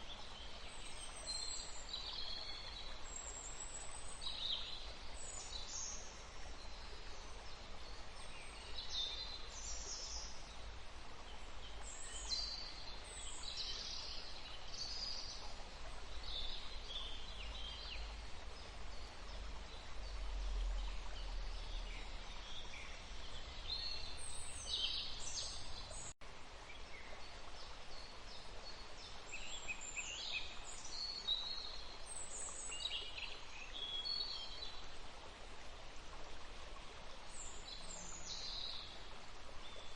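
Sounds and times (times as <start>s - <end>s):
small birds singing: 0.0s - 34.8s, 37.3s - 39.9s
river flowing: 0.0s - 39.9s.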